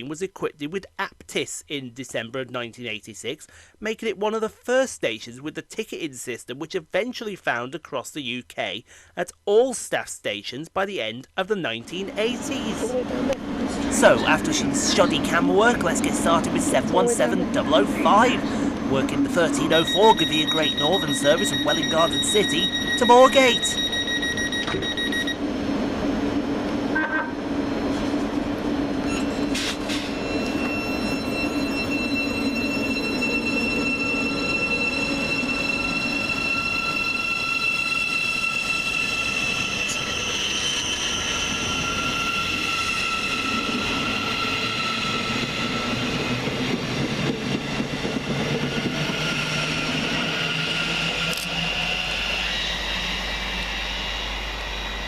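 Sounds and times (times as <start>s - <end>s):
wheels rumbling on rail: 12.3s - 23.2s, 23.8s - 55.0s
electric train traction whine: 12.3s - 55.0s.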